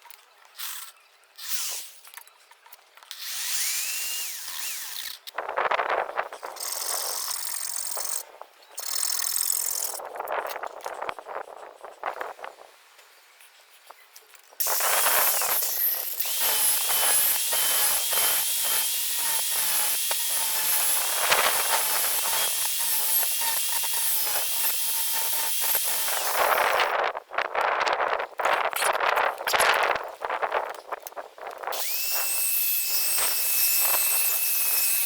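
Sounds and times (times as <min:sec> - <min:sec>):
power tool whining and rattling: 0:14.6 - 0:27.0, 0:31.7 - 0:35.0.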